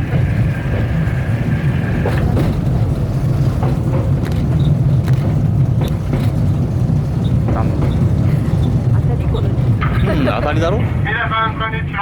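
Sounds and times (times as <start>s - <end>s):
rail cart motor and wheels rumbling: 0.0s - 12.0s.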